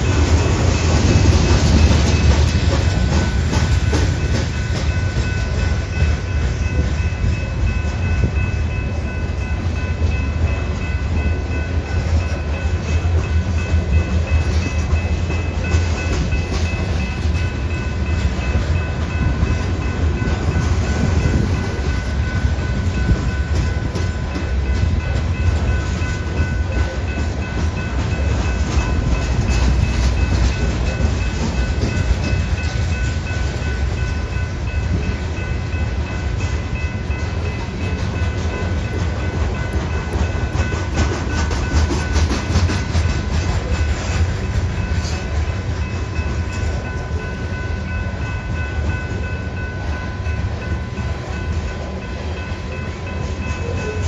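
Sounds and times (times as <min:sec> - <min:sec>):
wheels clacking over rail joints: 0:00.0 - 0:07.4, 0:36.4 - 0:49.4
freight train rumbling past: 0:00.0 - 0:54.0.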